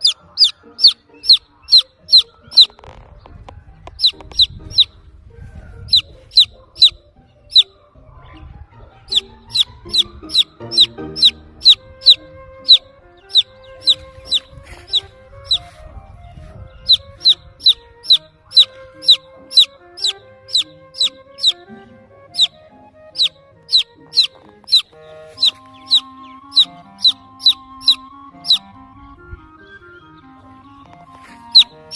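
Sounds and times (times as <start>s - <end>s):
chick peeping: 0.0s - 29.4s, 30.8s - 31.9s
background music: 0.0s - 31.9s.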